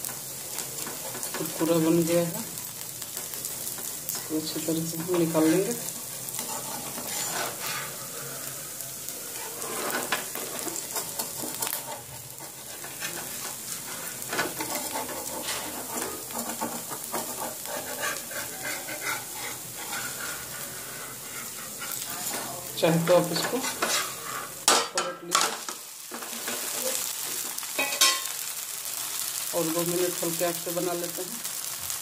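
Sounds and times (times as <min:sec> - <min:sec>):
dosa sizzling in oil: 0:00.0 - 0:32.0
metal spatula scraping pan: 0:05.0 - 0:28.3.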